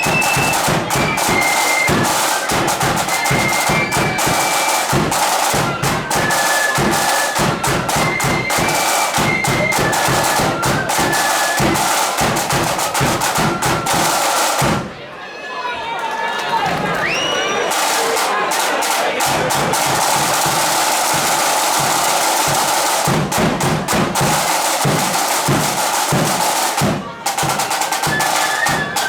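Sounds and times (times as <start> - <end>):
flute melody: 0.0 - 14.6, 27.4 - 29.0
snare drumming: 0.0 - 14.9, 16.7 - 29.0.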